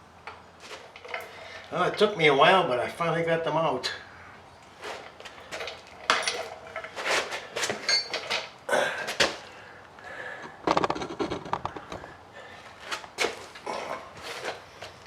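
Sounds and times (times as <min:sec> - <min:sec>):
small metal parts clinking: 0:05.4 - 0:08.5.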